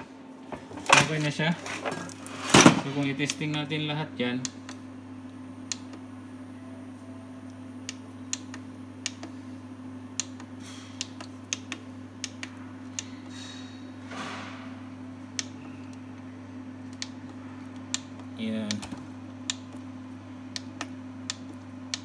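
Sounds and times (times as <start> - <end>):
steady low hum: 0.0 - 22.0
push-buttons clicking: 5.6 - 6.0.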